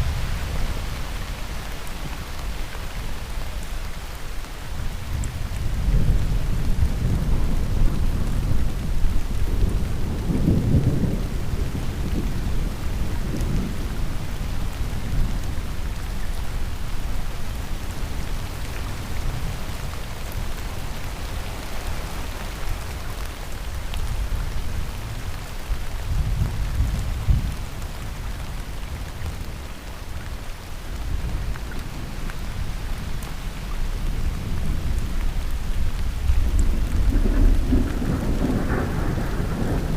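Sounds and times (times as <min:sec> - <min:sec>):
heavy rain falling: 0:00.0 - 0:39.9
thunder rumbling: 0:34.4 - 0:39.9.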